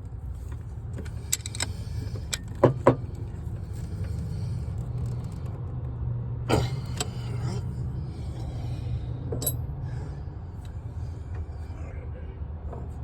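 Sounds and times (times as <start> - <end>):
steady low hum: 0.0 - 13.0
metal tools clinking: 9.4 - 9.6.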